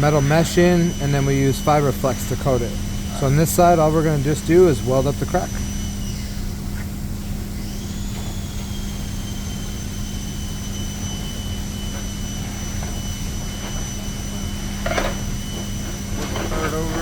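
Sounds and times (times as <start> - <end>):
plastic welder humming and whining: 0.0 - 17.0.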